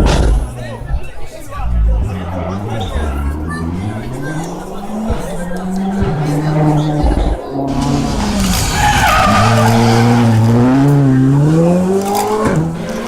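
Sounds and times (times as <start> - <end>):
rally car engine revving: 0.0 - 13.0
tyres squealing: 7.6 - 13.0.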